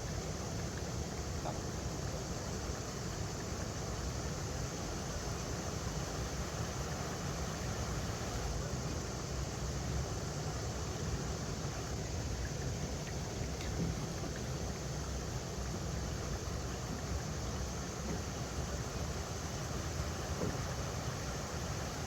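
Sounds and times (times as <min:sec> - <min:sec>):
river water over rocks: 0:00.0 - 0:22.0.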